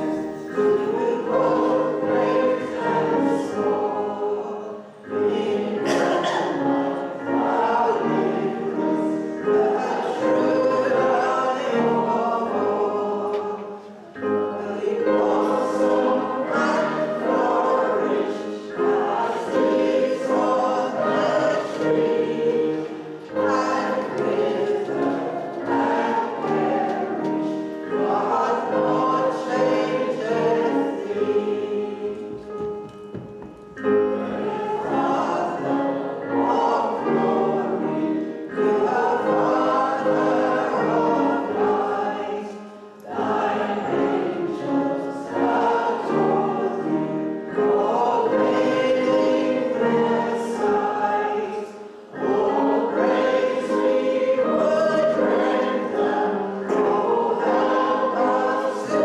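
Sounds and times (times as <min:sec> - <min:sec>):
choir singing a worship song: 0:00.0 - 0:59.0.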